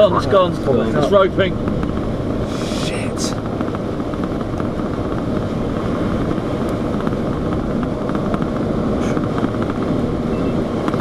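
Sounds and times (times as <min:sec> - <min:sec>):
vehicle running: 0:00.0 - 0:11.0
storm wind rushing: 0:00.2 - 0:11.0.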